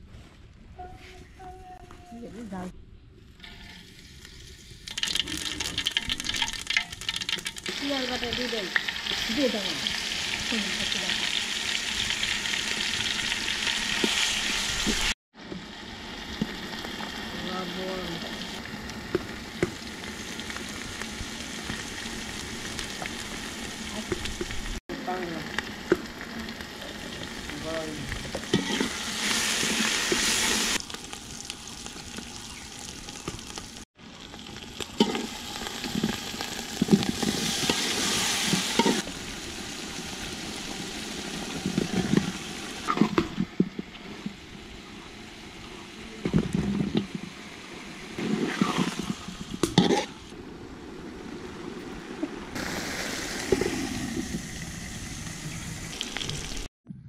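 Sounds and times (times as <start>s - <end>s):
onions frying in oil: 3.5s - 56.7s
metal spatula scraping a pot: 28.5s - 29.0s, 49.8s - 50.1s.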